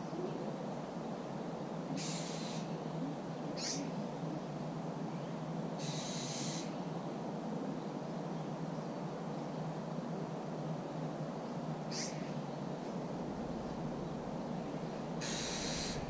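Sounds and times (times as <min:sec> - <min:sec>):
high buzzy bird calls: 0:01.9 - 0:07.0, 0:11.8 - 0:16.0
bird chirp: 0:03.6 - 0:06.8, 0:11.9 - 0:16.0
low rushing background: 0:12.1 - 0:16.0.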